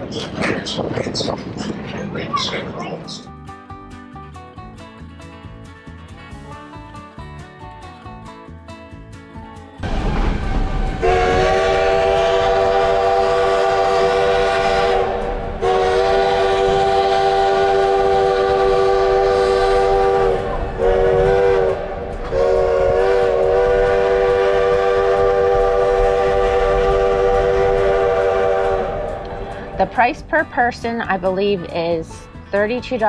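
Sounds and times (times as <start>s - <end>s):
train rumble: 0.0s - 3.0s, 9.8s - 33.0s
steam locomotive chime whistle: 9.8s - 30.1s.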